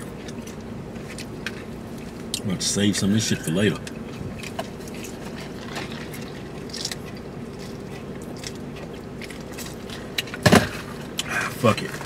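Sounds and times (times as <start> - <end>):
low car cabin hum: 0.0 - 12.0
chewing fried seafood: 3.6 - 10.4.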